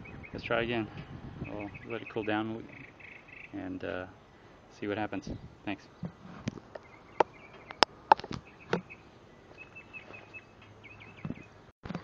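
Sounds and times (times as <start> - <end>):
small bird chirping: 1.4 - 4.4, 6.7 - 12.0.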